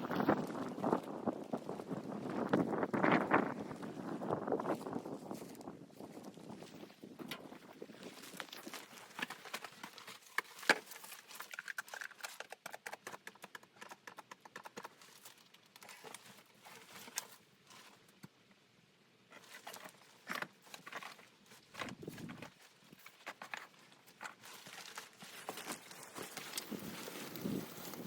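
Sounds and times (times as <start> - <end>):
footsteps crunching in snow: 24.4 - 28.0.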